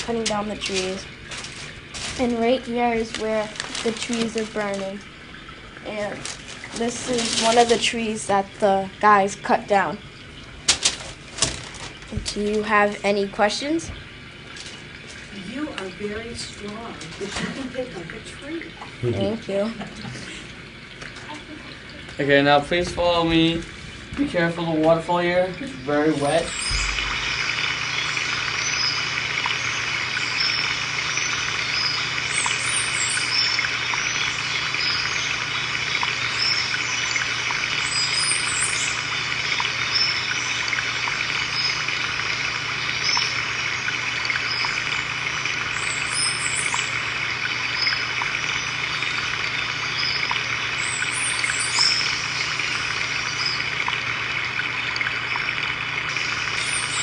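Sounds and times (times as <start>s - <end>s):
water trickling and splashing: 0.0s - 57.0s
high bird chirps: 26.4s - 39.1s, 45.7s - 47.0s, 47.7s - 53.7s, 56.1s - 57.0s.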